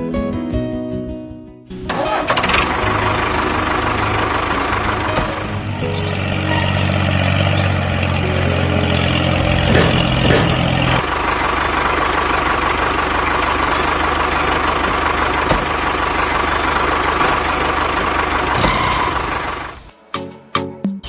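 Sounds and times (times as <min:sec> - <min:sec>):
short musical notes: 0:01.9 - 0:11.0
tractor engine idling: 0:01.9 - 0:19.9.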